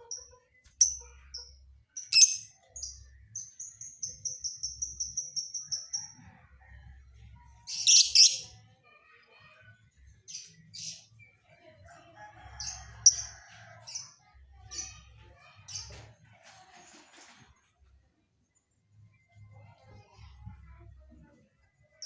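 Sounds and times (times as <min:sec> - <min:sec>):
canary singing: 0:00.0 - 0:06.2, 0:07.7 - 0:08.6.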